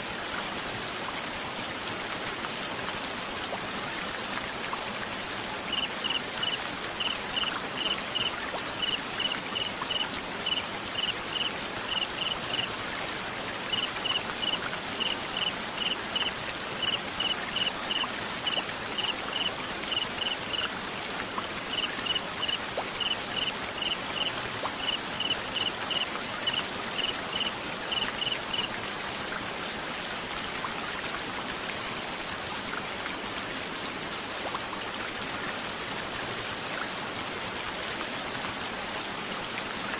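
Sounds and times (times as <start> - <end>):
steady rain-like hiss: 0.0 - 39.9
cricket chirping: 5.7 - 12.7, 13.7 - 20.7, 21.7 - 28.7.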